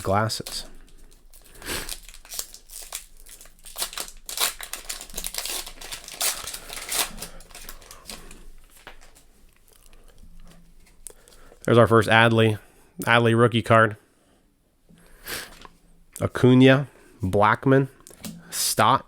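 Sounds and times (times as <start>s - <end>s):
cards rustling: 0.0s - 9.3s
foil wrapper crinkling and tearing: 0.0s - 9.3s.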